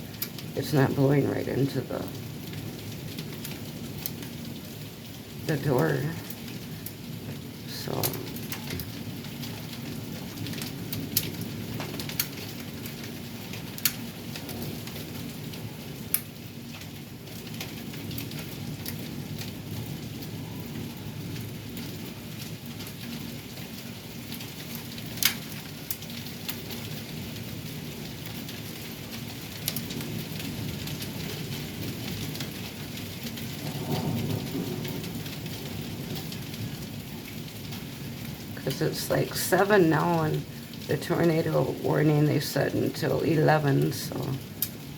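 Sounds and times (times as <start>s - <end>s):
thunder rumbling: 0.0s - 16.1s, 29.5s - 44.9s
hailstones ticking: 0.0s - 44.9s
heavy rain falling: 0.0s - 44.9s.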